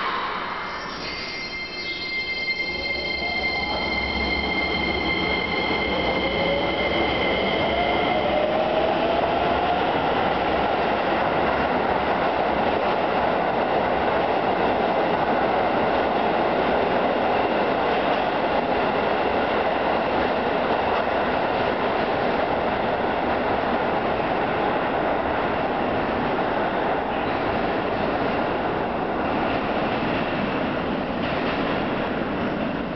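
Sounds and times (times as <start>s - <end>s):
steady high tones: 0.0s - 8.9s
train wheels rumbling on rails: 3.0s - 32.9s.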